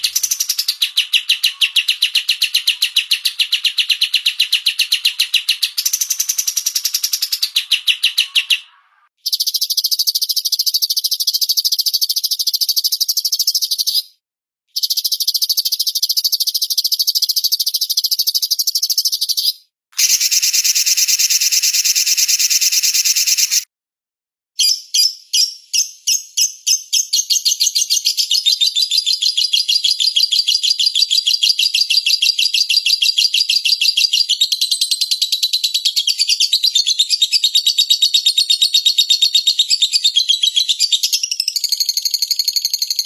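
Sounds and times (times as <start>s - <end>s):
songbird chattering trill: 0.0s - 14.1s, 14.8s - 23.6s.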